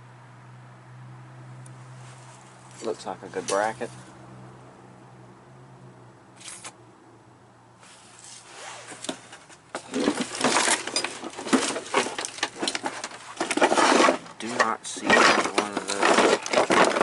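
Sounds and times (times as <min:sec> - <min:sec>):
metal parts clinking and clattering: 0:09.7 - 0:17.0.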